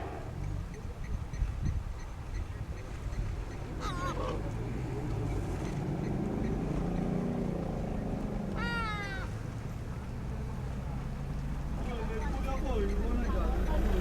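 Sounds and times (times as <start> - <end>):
honking animal calls: 2.9 - 4.8.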